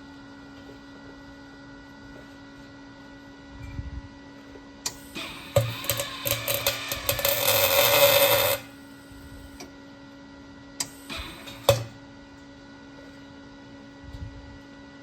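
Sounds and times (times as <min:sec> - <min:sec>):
welder arc crackling and buzzing: 0:04.8 - 0:09.7, 0:10.8 - 0:12.0.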